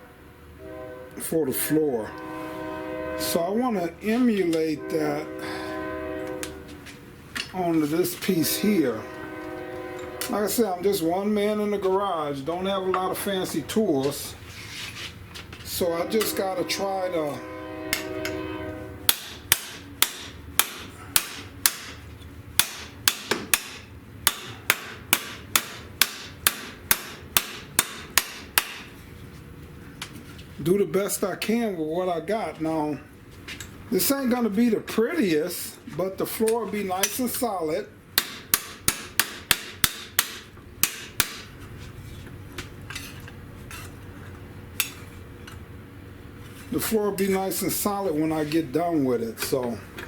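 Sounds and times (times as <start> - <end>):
hammer striking sheet steel: 15.8 - 22.0, 22.6 - 29.0, 38.2 - 41.6.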